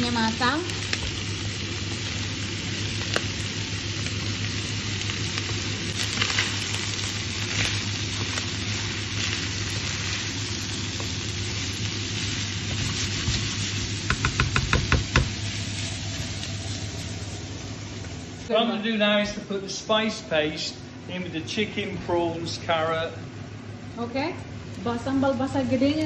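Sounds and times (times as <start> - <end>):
food sizzling in frying pan: 0.0 - 18.5, 22.6 - 26.0
spatula tapping and scraping pan: 12.7 - 15.4.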